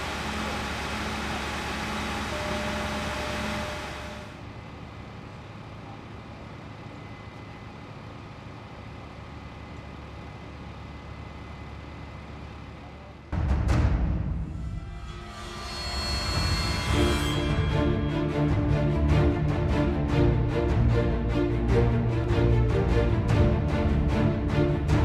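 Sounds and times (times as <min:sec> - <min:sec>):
vehicle engine idling: 0:00.0 - 0:13.4.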